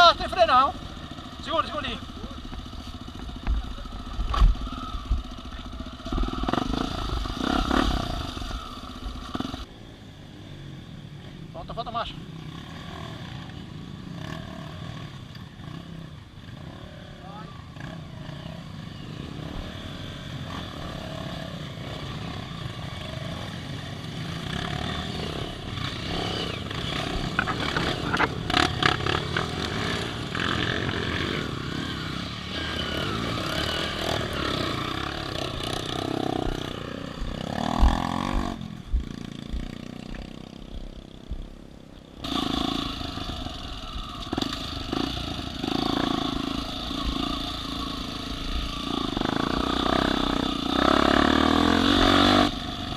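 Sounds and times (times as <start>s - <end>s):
off-road vehicle engine running: 0.0s - 9.7s, 24.4s - 52.9s.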